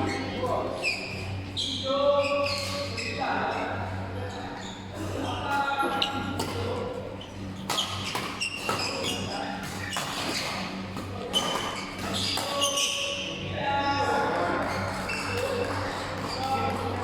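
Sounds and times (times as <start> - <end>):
shoes squeaking: 0.0 - 3.3, 6.0 - 13.3, 14.4 - 17.0
voices echoing in hall: 0.0 - 10.0, 10.6 - 17.0.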